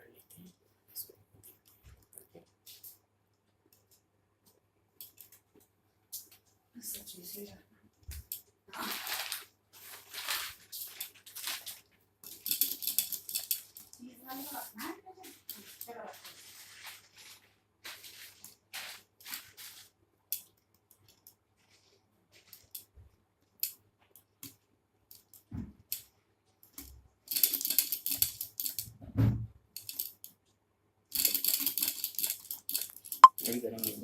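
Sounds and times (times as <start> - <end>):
metallic clicks and rattles: 12.2 - 14.0.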